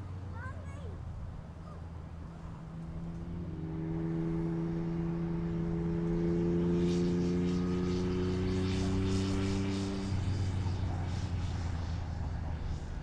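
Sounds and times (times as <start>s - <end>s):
steady engine drone: 0.0s - 13.0s.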